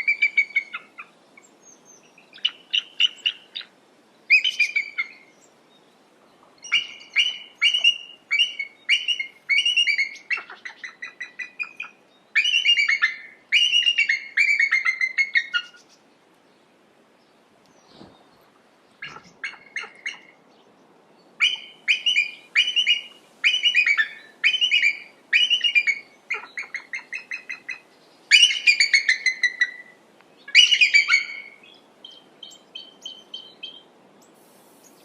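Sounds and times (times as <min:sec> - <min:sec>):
eagle piping chatter: 0:19.0 - 0:20.3.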